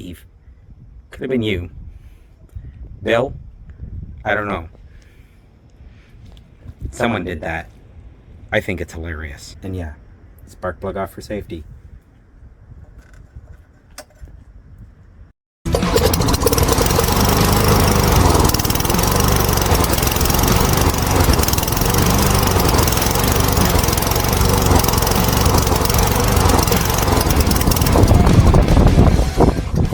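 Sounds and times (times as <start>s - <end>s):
lawn mower engine running: 15.7s - 29.9s.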